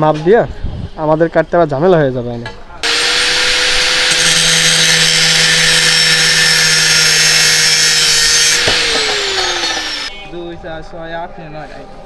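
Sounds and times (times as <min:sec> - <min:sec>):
power tool motor whine: 0:02.8 - 0:10.1
hiss of cutting steel pipe: 0:02.8 - 0:10.2.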